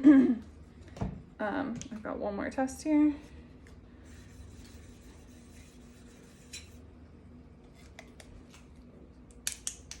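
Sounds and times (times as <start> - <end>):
sharp plastic snaps: 9.3 - 10.0.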